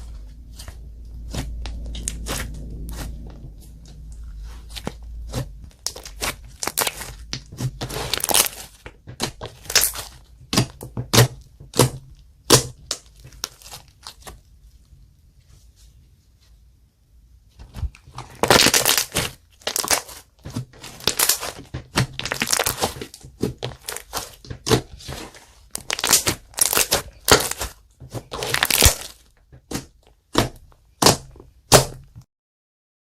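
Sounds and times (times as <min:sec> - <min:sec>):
slime squeezed and stretched by hand: 0:00.5 - 0:10.7, 0:17.7 - 0:31.2.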